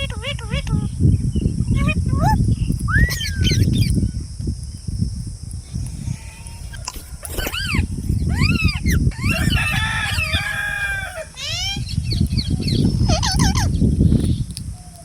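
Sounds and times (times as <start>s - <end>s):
low microphone rumble: 0.0s - 15.0s
parrots screeching: 5.7s - 13.8s.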